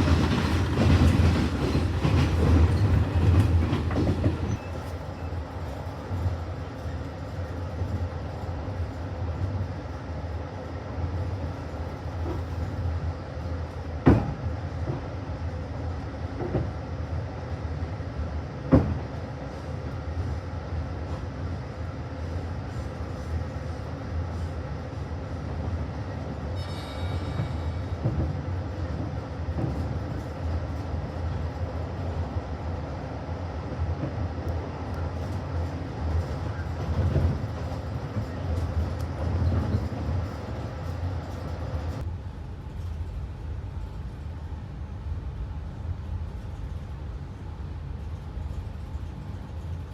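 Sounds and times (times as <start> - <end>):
train carriage rumbling: 0.0 - 49.9.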